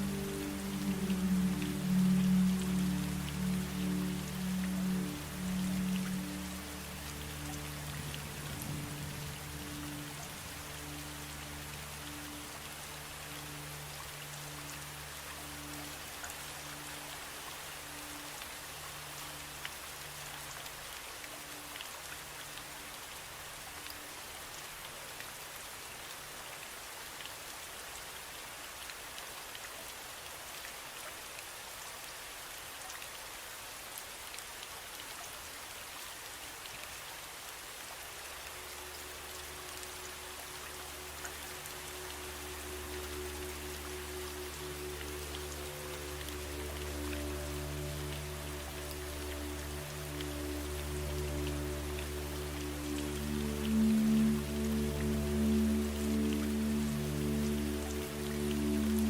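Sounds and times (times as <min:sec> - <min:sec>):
faint low sustained tones: 0:00.0 - 0:22.8, 0:38.6 - 0:59.0
steady rain falling: 0:00.0 - 0:59.0.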